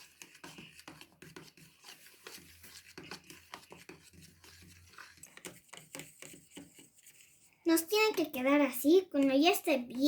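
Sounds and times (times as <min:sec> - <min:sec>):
fork scraping bowl: 0:00.0 - 0:07.6.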